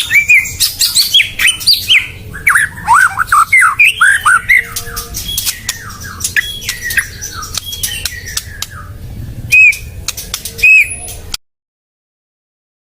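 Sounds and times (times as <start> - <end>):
bird singing clicks and whistles: 4.1 - 8.8, 9.6 - 11.4.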